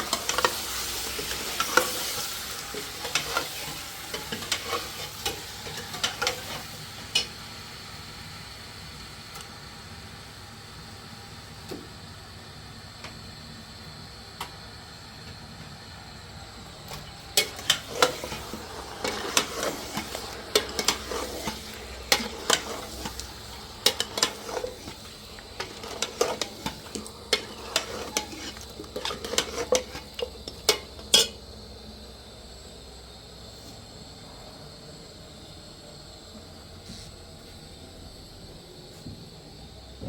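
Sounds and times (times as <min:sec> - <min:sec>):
metal implement scraping: 0:17.4 - 0:31.3.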